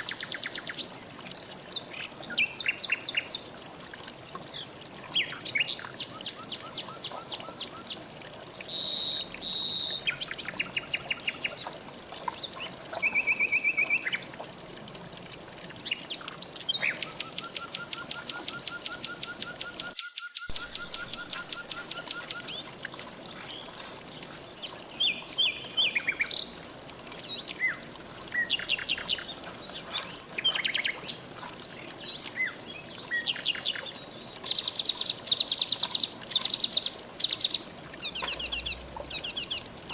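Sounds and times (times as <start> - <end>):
faint flowing water: 0.0 - 39.9
songbirds trilling and whistling: 8.7 - 11.7, 15.8 - 22.7, 27.2 - 31.2, 32.0 - 39.9.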